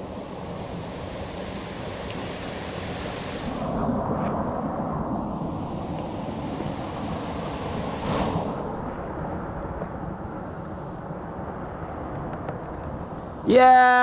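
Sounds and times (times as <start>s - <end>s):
flowing water rushing: 0.0s - 11.0s.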